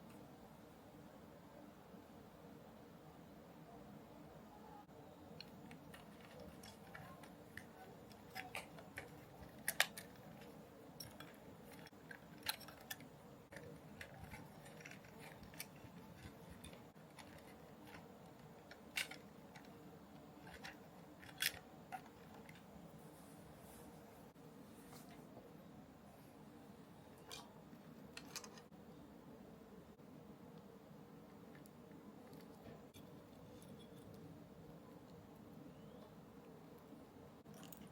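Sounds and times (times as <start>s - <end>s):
faint steady hum: 0.0s - 37.9s
plastic parts being handled: 5.3s - 23.6s, 27.2s - 28.7s.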